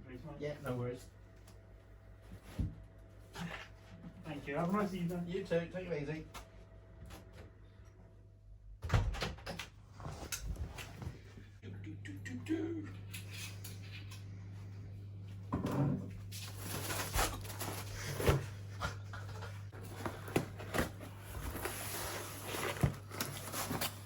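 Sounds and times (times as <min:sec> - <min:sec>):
steady low hum: 0:10.4 - 0:24.0.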